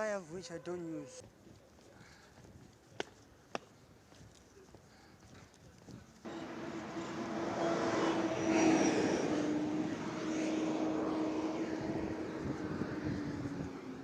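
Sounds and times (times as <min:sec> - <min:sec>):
loud engine passing: 0:06.3 - 0:14.0.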